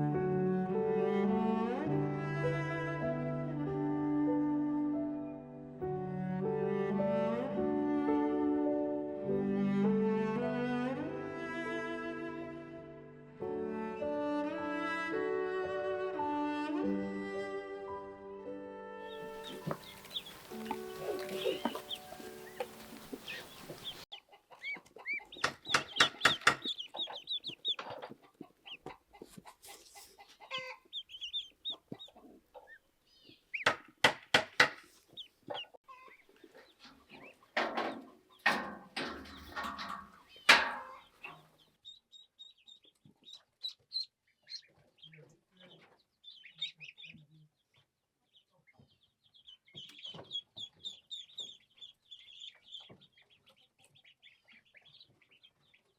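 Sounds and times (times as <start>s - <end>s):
high chirping calls: 19.2s - 28.0s, 30.4s - 33.7s
chickens clucking: 19.2s - 33.8s, 34.6s - 41.6s.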